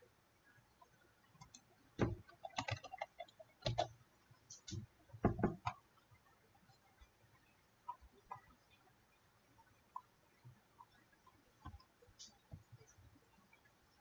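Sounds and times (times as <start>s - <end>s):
computer mouse clicks: 1.4s - 1.7s, 2.4s - 5.8s.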